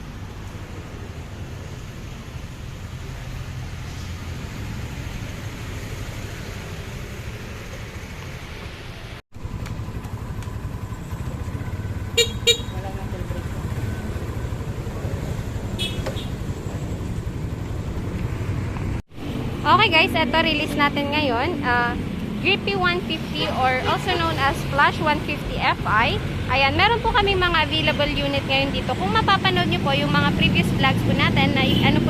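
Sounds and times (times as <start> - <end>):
traffic engines rumbling: 0.0 - 32.0
car horn toots: 12.1 - 12.8, 15.8 - 16.3.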